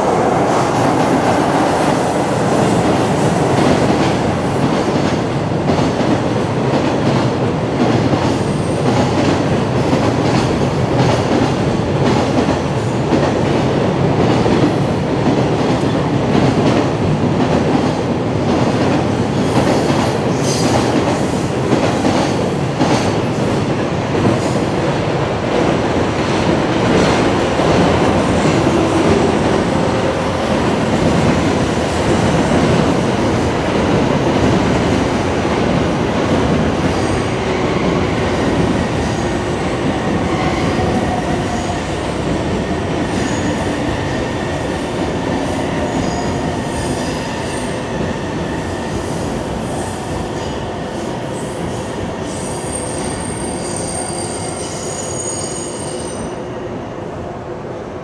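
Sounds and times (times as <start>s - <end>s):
freight train rumbling past: 0.0s - 58.0s
faint high wheel squeal: 52.7s - 56.3s.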